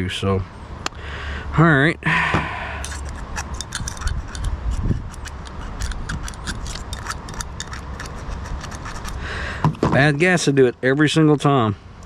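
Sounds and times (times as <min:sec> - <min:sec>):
small metal parts clicking: 0:02.8 - 0:09.2.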